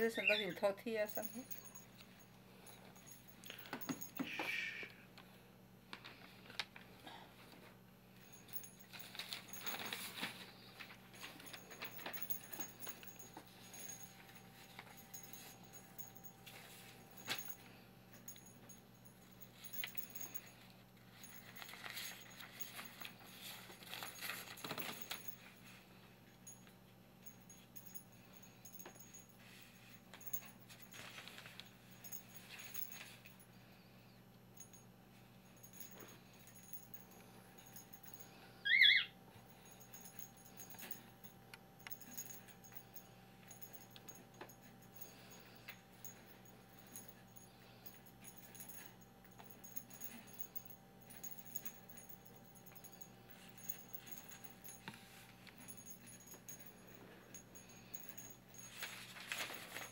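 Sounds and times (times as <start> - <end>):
small metal bell jingling: 0.0 - 4.9, 8.2 - 59.9
cockatiel chirping: 0.1 - 0.6, 38.6 - 39.1.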